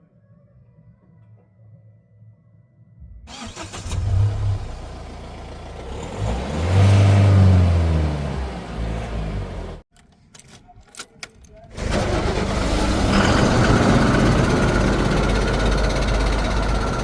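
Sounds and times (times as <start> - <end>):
heavy diesel engine revving: 3.3 - 9.8, 11.8 - 17.0.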